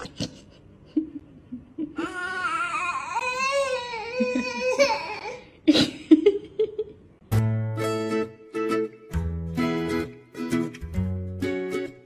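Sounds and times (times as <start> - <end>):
baby crying: 2.0 - 5.5.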